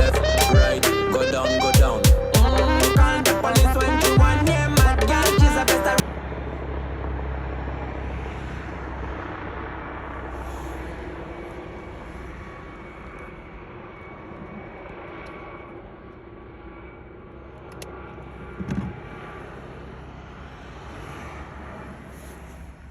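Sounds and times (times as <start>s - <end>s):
aircraft engine and rotor: 0.0s - 22.9s.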